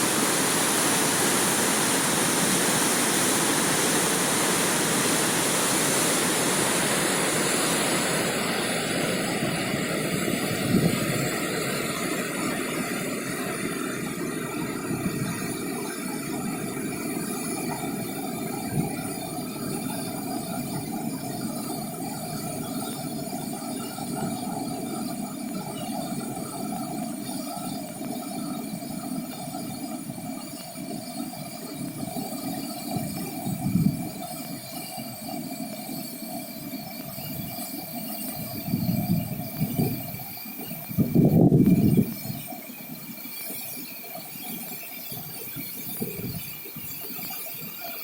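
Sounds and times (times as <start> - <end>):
water rushing: 0.0 - 15.7.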